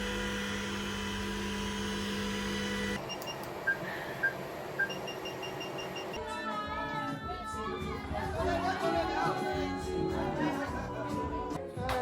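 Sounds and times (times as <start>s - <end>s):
electronic hum with tones: 0.0s - 6.2s
fast repeating beep: 3.1s - 6.2s.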